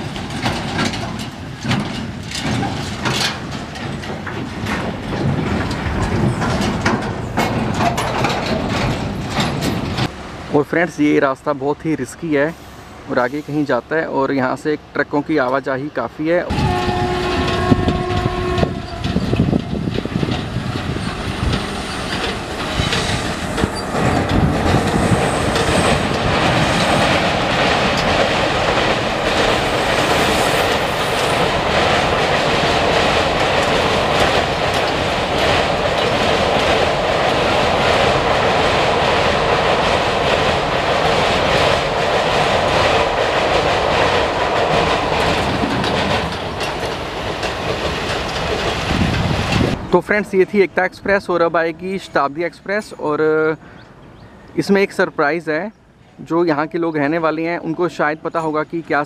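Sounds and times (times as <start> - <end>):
train crossing steel bridge: 0.0 - 59.0
wheels clickety-clack over rail joints: 0.0 - 59.0.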